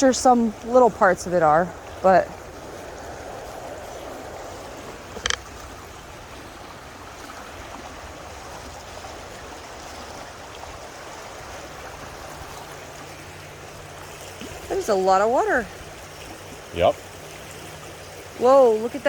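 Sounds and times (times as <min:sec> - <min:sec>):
rushing floodwater: 0:00.0 - 0:19.0.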